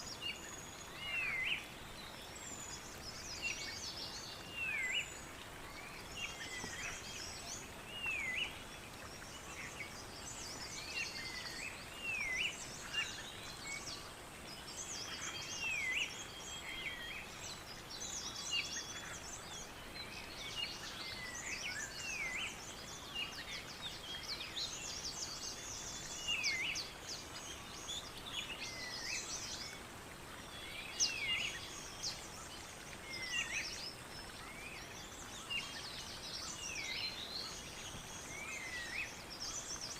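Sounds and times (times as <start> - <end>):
background hiss: 0.0 - 39.9
birds twittering and trilling: 0.0 - 39.9.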